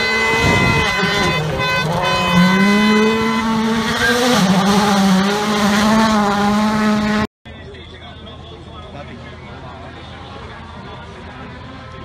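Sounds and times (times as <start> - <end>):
rally car engine revving high: 0.0 - 7.3.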